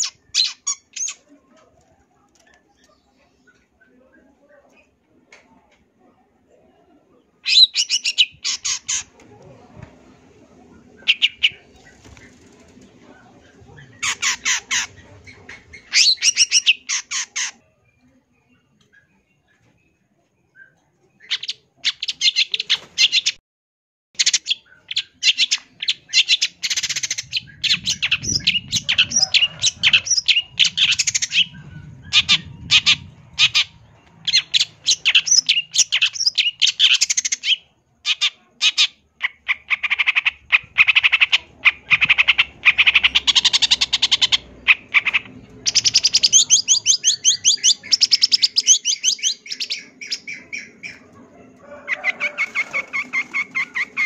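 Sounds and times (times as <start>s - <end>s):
shrike chattering song: 10.9s - 17.6s, 24.2s - 51.0s.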